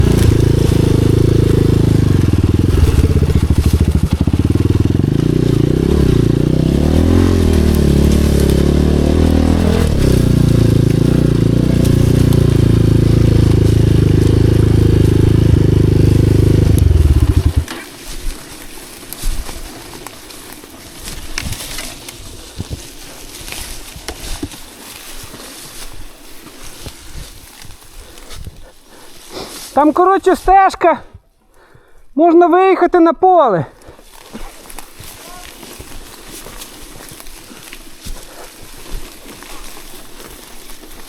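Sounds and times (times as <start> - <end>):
dirt bike engine running: 0.0 - 23.4.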